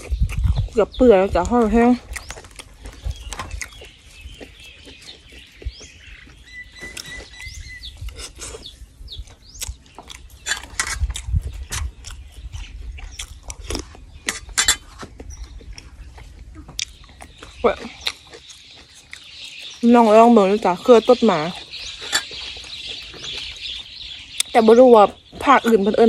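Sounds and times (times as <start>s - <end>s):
lip smacks and mouth clicks: 0.0s - 0.8s, 2.0s - 8.7s, 9.3s - 19.8s
faint birds chirping: 0.0s - 26.0s
wet chewing: 0.0s - 26.0s.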